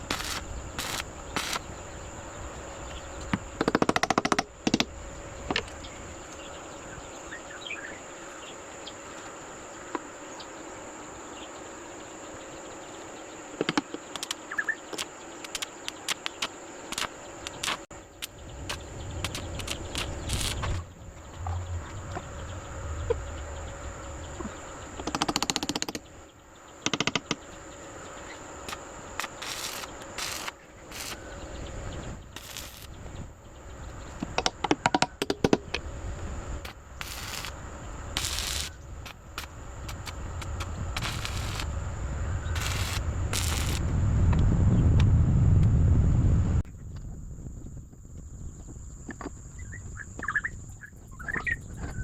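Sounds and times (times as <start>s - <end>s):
crackly clusters: 0.0s - 1.7s, 14.1s - 22.3s, 28.6s - 31.2s, 32.3s - 33.0s, 36.6s - 41.8s, 42.6s - 43.8s
crickets droning: 0.0s - 52.0s
low rumble: 18.3s - 25.1s, 35.9s - 47.8s
sharp knocks and clicks: 26.8s - 27.4s.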